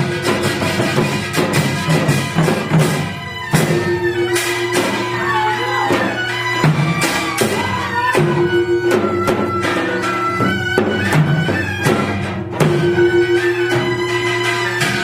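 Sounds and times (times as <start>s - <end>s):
drum strokes: 0.0s - 15.0s
sliding sustained melody: 3.5s - 10.5s.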